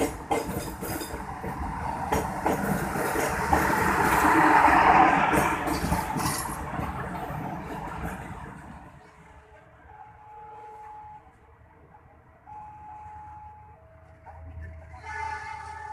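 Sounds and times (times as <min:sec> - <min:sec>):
wheels clicking over rail joints: 0:00.0 - 0:04.6, 0:05.2 - 0:08.8
train passing: 0:00.0 - 0:15.9.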